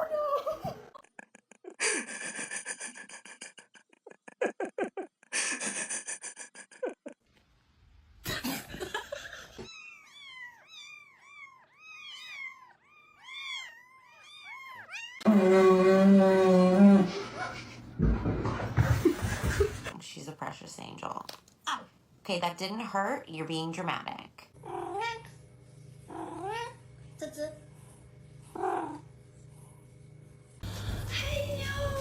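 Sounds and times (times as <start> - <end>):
cat chirping calls: 9.7 - 15.2
cat meowing: 9.7 - 15.2.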